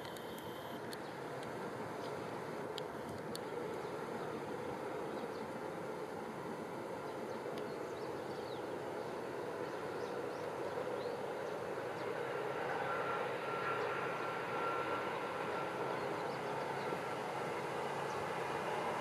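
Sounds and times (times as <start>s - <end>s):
faint high whine: 0.0s - 19.0s
distant train rushing: 1.1s - 19.0s.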